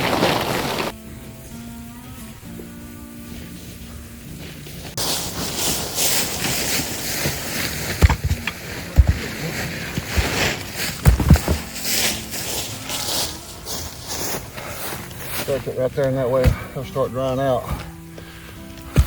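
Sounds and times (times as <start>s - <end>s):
sticks rustling and scraping: 0.0s - 1.0s, 3.3s - 19.0s
wood thumping: 6.4s - 11.9s, 16.4s - 16.8s.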